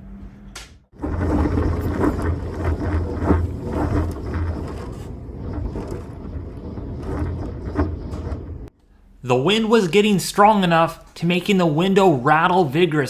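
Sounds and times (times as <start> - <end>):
strong wind gusting: 0.9 - 8.7
window rattling in frame: 0.9 - 8.8.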